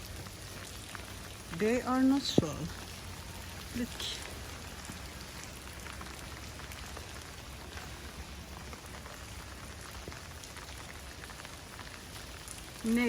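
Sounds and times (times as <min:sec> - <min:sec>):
heavy rain falling: 0:00.0 - 0:13.0
low steady rumble: 0:00.0 - 0:13.0.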